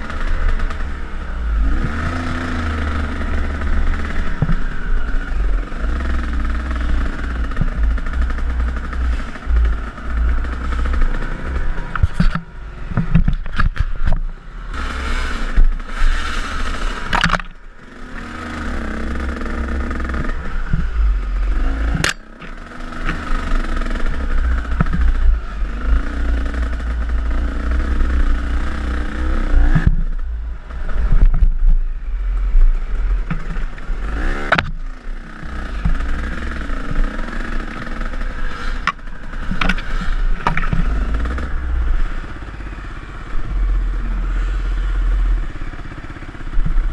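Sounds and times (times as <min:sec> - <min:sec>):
dirt bike engine revving: 0:00.0 - 0:46.9
knocks and clatter from bike: 0:03.4 - 0:04.7, 0:06.8 - 0:14.4, 0:15.4 - 0:17.6, 0:21.9 - 0:25.3, 0:29.6 - 0:31.7, 0:32.3 - 0:41.5, 0:46.2 - 0:46.9.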